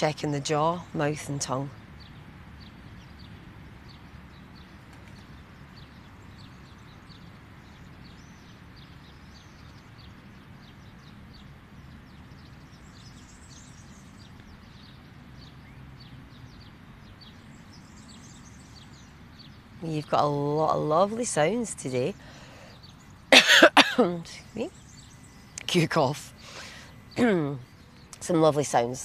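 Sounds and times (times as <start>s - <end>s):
low background rumble: 0.0s - 29.0s
small birds chirping: 0.0s - 29.0s.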